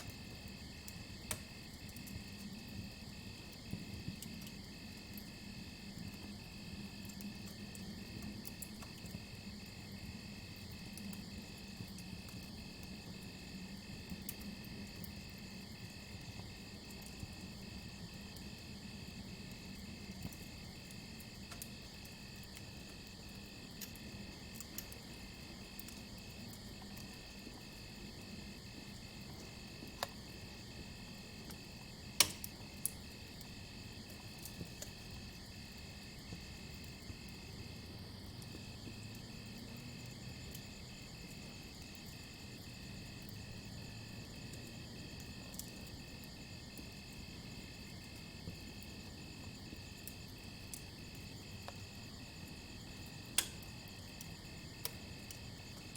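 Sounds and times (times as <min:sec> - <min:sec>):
campfire hissing and crackling: 0:00.0 - 0:55.9
crickets chirping: 0:17.8 - 0:55.9.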